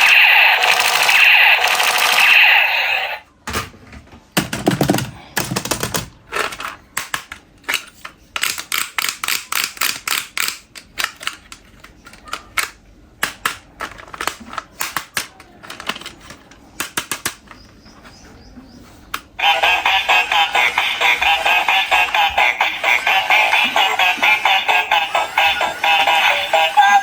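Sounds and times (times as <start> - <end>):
plastic toys clicking and clacking: 0.0 - 2.6, 4.4 - 17.8
music: 19.4 - 27.0.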